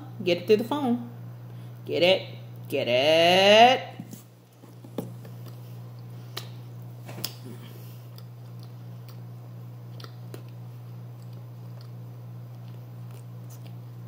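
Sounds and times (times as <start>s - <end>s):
steady low hum: 0.0s - 14.0s
person chewing food: 4.6s - 14.0s.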